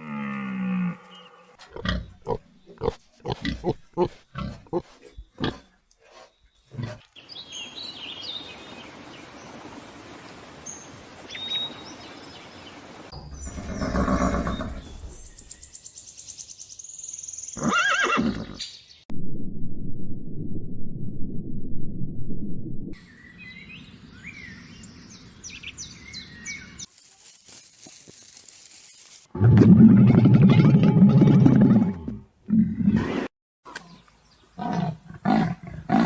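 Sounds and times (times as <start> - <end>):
pig grunts: 1.6 - 5.7
horse neighing: 13.5 - 14.9, 17.6 - 18.6.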